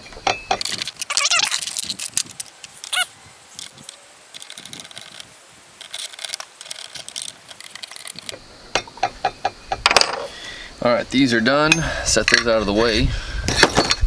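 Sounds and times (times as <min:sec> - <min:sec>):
metallic clicking of bolts and wrench: 0:00.3 - 0:09.4
short squeak: 0:00.4 - 0:02.0, 0:02.8 - 0:03.1.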